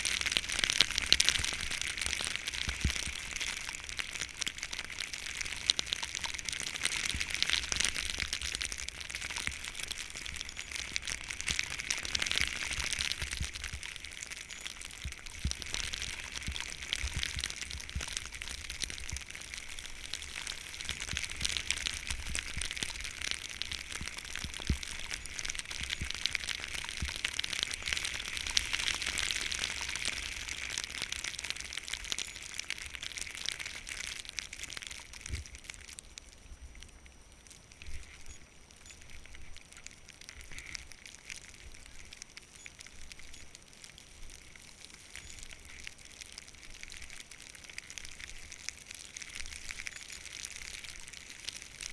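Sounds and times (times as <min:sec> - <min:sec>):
wind rumbling on microphone: 0:00.0 - 0:31.8
skis sliding over snow: 0:00.0 - 0:35.6.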